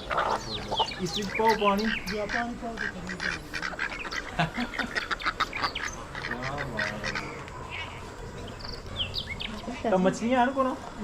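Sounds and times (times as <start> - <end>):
poultry calling: 0.0 - 11.0.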